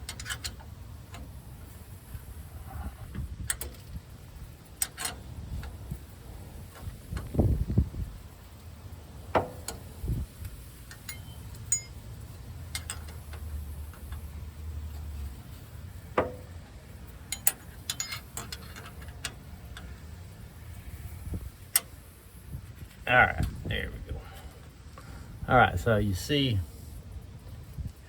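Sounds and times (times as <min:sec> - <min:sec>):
hand tools clinking on metal: 0:10.9 - 0:12.0, 0:17.2 - 0:20.0.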